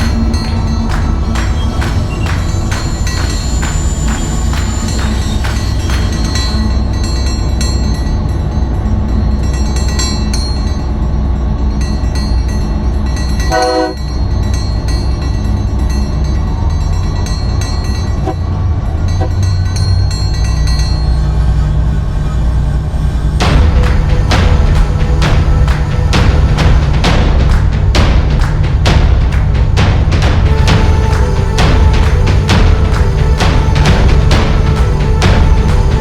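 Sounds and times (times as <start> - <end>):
locomotive horn blast: 0.0 - 7.2, 13.5 - 14.0, 23.4 - 27.9, 30.5 - 36.0
locomotive low rumble: 0.0 - 36.0.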